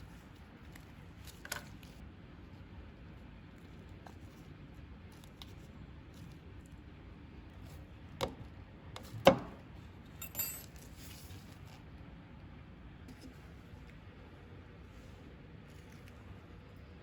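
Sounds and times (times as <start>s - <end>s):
metal parts clicking: 10.2s - 10.8s
light metallic jingle: 10.2s - 11.3s.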